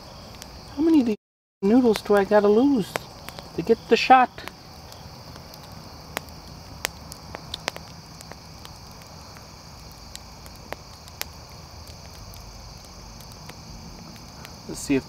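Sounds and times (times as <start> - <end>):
insects chirring: 0.0 - 15.0
sharp clicks and pops: 4.4 - 14.6.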